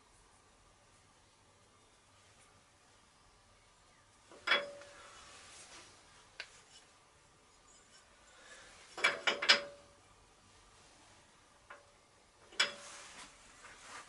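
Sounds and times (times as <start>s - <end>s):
metal clinking on metal: 4.3s - 4.9s, 9.0s - 9.9s.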